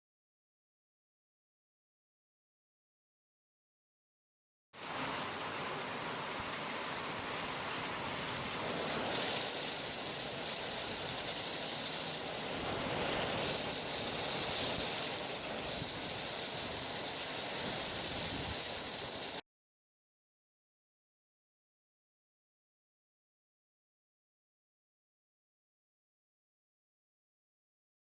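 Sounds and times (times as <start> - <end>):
heavy rain falling: 4.8 - 19.4.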